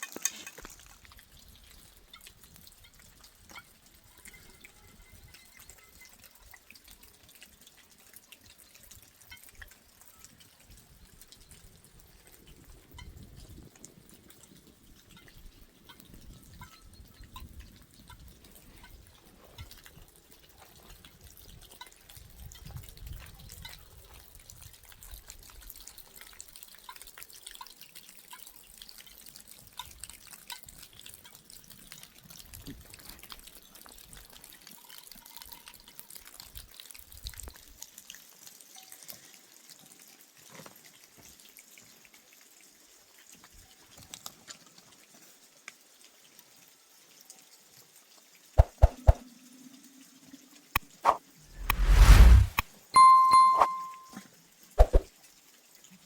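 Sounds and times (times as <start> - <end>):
low rumble: 51.6 - 52.6.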